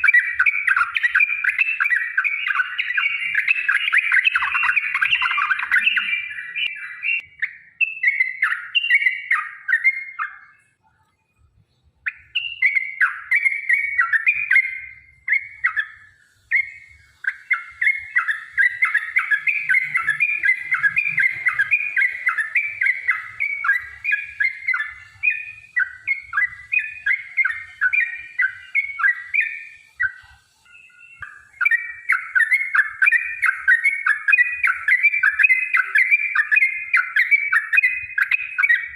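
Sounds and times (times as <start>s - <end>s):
bird singing bubbly chirps: 0.0s - 38.9s.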